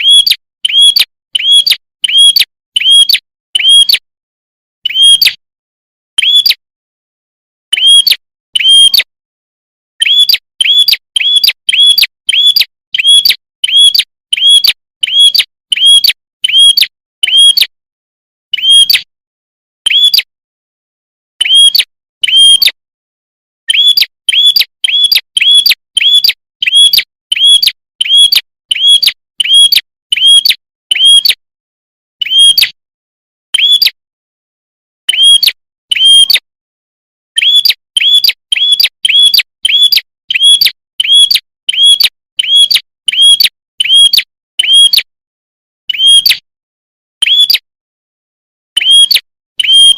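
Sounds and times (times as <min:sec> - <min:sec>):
bird chirping: 0:00.0 - 0:04.0, 0:04.8 - 0:05.4, 0:06.2 - 0:06.6, 0:07.7 - 0:09.0, 0:10.0 - 0:17.7, 0:18.5 - 0:19.1, 0:19.9 - 0:20.3, 0:21.4 - 0:22.7, 0:23.7 - 0:31.4, 0:32.2 - 0:32.8, 0:33.6 - 0:34.0, 0:35.1 - 0:36.4, 0:37.4 - 0:45.0, 0:45.9 - 0:46.4, 0:47.2 - 0:47.7, 0:48.8 - 0:49.9.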